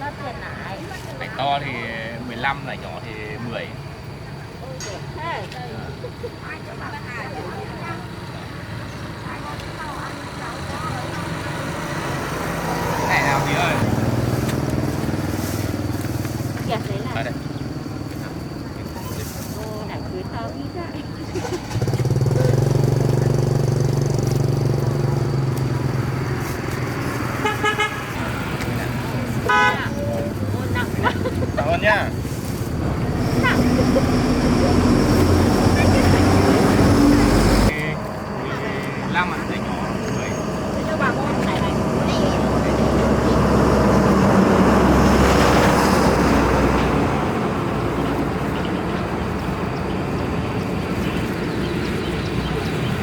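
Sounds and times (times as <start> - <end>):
motorbike engine running: 9.2 - 18.8, 21.1 - 53.0
horn beep: 27.3 - 28.2, 29.4 - 30.2.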